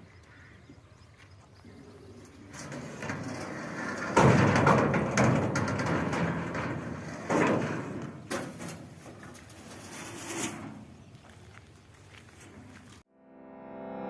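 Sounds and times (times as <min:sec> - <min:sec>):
scraping and knocking of machine parts: 0:02.5 - 0:11.0.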